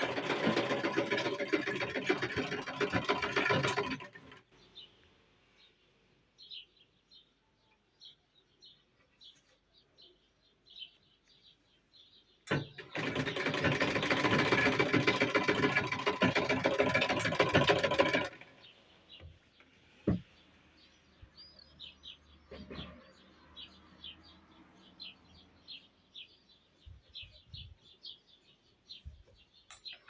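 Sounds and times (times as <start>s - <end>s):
sewing machine stitching: 0.0s - 4.5s, 12.5s - 18.7s.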